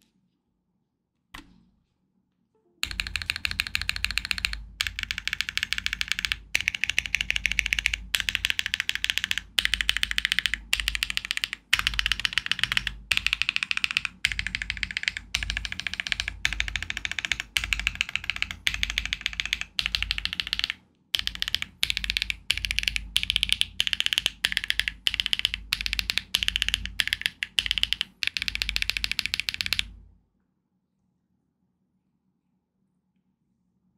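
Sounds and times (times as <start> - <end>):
typing on a mechanical keyboard: 2.8 - 30.0.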